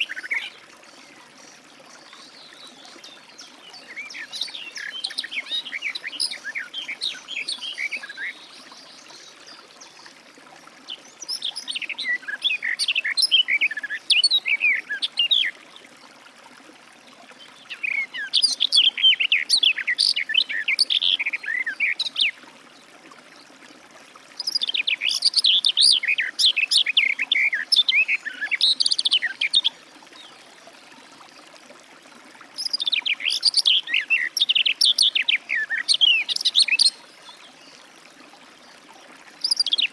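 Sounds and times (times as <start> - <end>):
warbler singing: 39.4 - 39.9.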